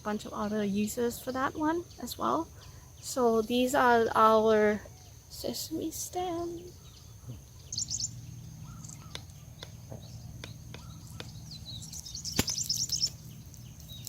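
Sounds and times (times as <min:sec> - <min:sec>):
small birds chirping: 0:00.0 - 0:14.0
steady low hum: 0:00.0 - 0:14.0
sharp clicks: 0:12.4 - 0:13.6.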